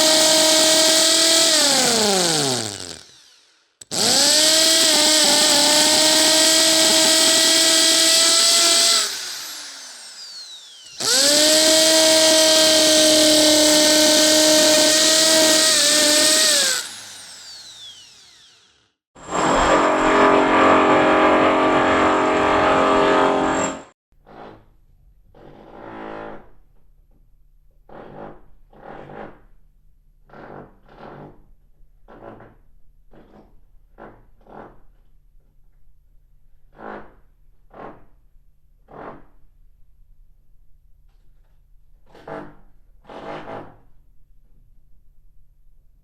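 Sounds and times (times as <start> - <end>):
power tool motor spinning: 0.0 - 19.0.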